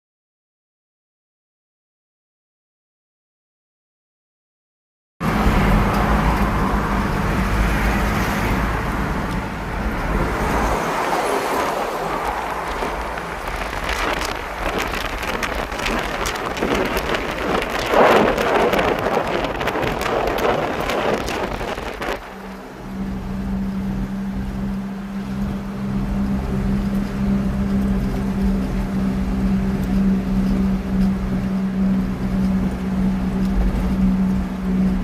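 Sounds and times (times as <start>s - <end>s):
loud rushing noise: 5.2s - 24.2s
engine humming: 5.2s - 35.0s.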